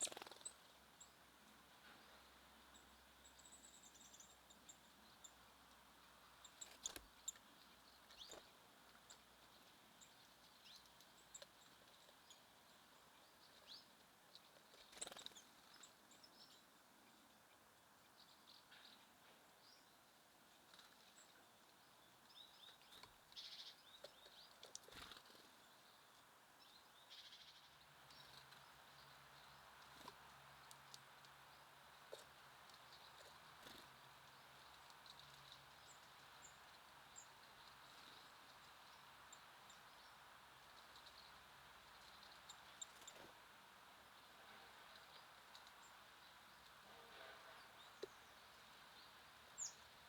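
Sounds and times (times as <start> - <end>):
small songbirds chirping: 0.0 - 50.0.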